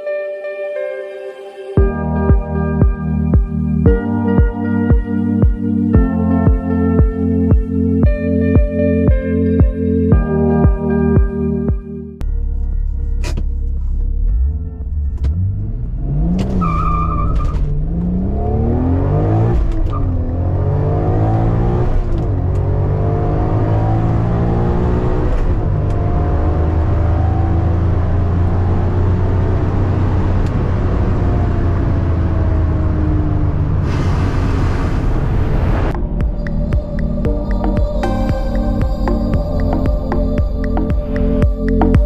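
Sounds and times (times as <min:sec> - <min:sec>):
car engine revving through gears: 0:13.2 - 0:42.0.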